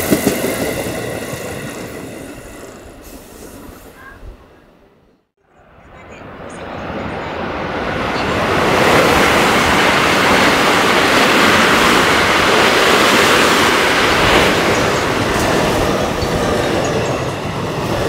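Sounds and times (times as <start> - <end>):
train rushing past: 5.5 - 18.0.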